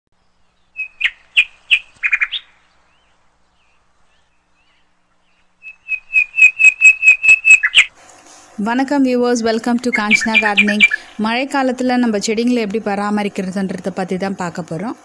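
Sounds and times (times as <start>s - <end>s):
bird chirping: 0.2s - 7.9s, 9.9s - 11.2s.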